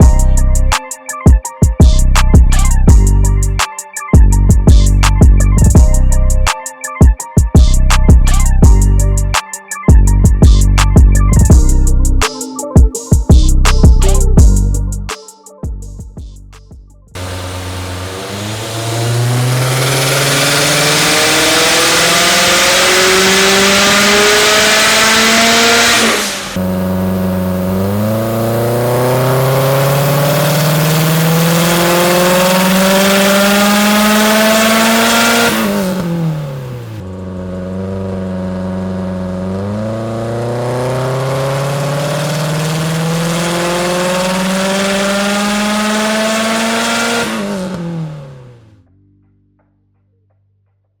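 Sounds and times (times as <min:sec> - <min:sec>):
car engine revving hard: 0:17.2 - 0:48.7.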